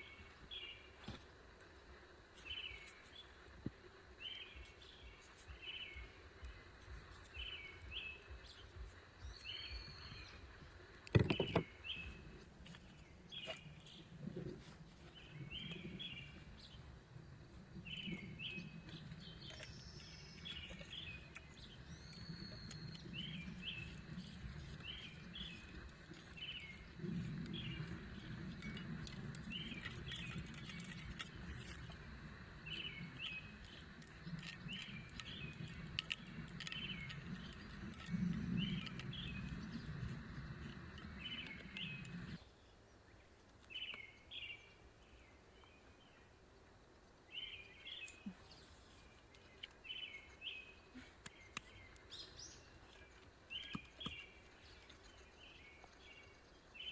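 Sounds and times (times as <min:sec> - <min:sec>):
low steady rumble: 0:00.0 - 0:42.7
small birds chirping: 0:00.0 - 0:46.4, 0:47.1 - 0:56.9.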